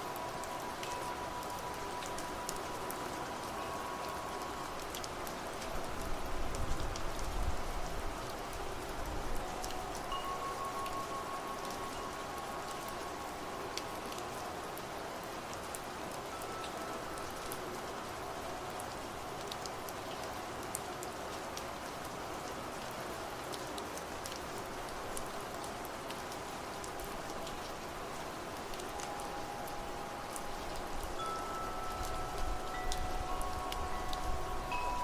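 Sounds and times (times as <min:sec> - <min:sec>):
faint wind chime ringing: 0:00.0 - 0:06.5, 0:09.1 - 0:21.0, 0:27.4 - 0:35.0
rain falling on a surface: 0:00.0 - 0:35.0.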